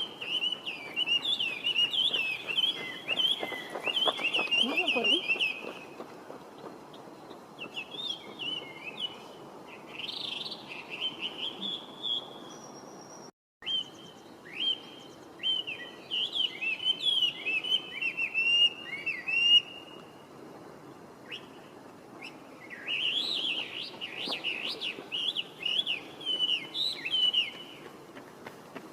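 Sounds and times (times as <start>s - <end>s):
bird singing whistled phrases: 10.2s - 20.0s, 22.2s - 27.7s.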